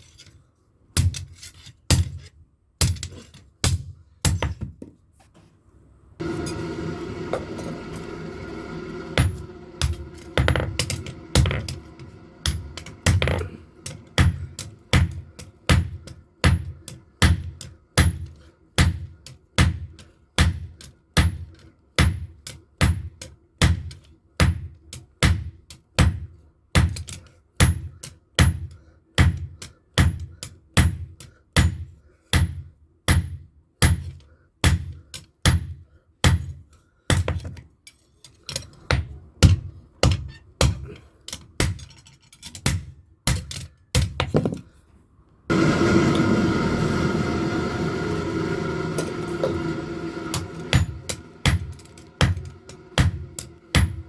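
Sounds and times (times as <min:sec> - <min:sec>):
hammer clanging on anvil: 0:49.0 - 0:54.0.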